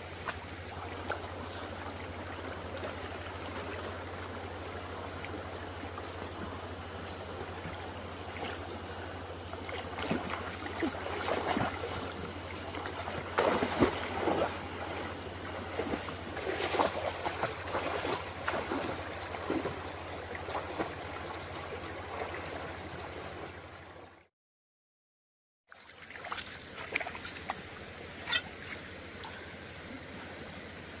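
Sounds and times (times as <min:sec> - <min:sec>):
steady low hum: 0:00.0 - 0:24.1
water splashing and trickling: 0:00.0 - 0:24.1, 0:25.7 - 0:30.9.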